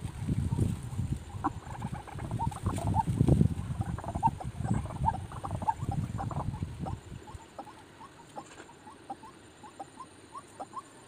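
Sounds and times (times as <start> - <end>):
rustling in undergrowth: 0.0 - 10.9
bird squeaky calls: 4.0 - 11.0.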